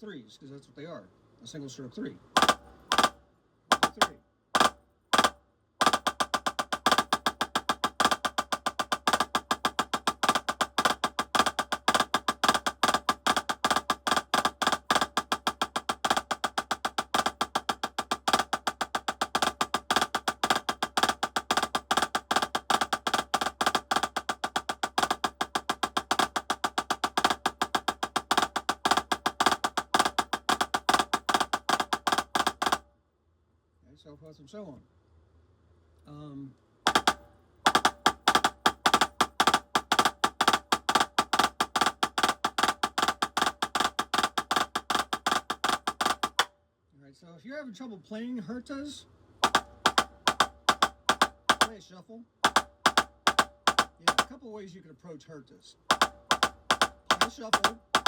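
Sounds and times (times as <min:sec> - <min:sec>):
drumsticks playing fast strokes: 0:02.4 - 0:32.8, 0:36.9 - 0:46.5, 0:49.4 - 0:51.8, 0:52.4 - 0:54.4, 0:55.8 - 0:58.0.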